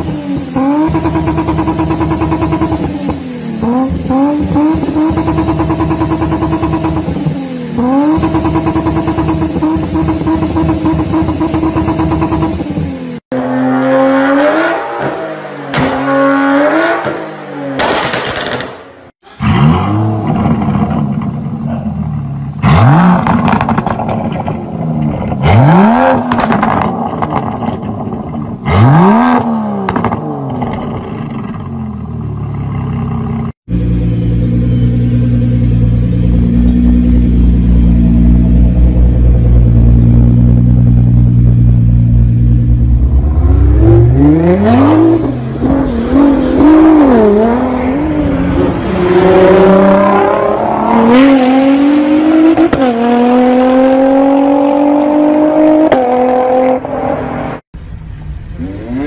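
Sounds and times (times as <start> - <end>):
sports car engine revving: 0.0 - 18.6, 19.4 - 57.6
sports car engine idling: 31.4 - 43.4.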